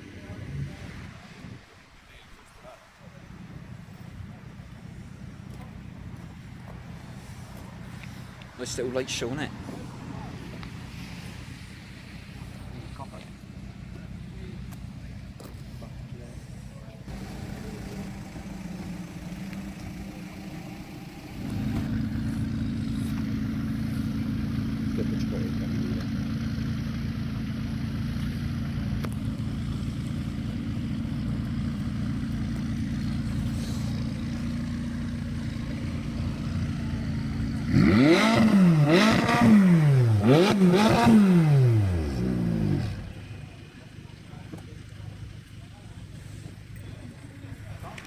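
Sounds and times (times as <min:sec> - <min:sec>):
car engine droning: 0:00.0 - 0:48.0
car engine revving: 0:15.2 - 0:43.6.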